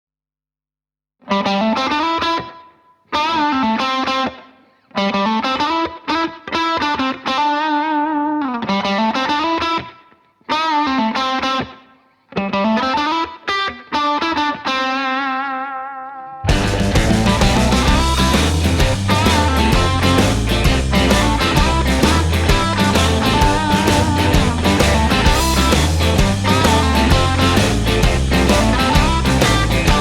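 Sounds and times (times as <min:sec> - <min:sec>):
electric guitar with vibrato: 0:01.2 - 0:30.0.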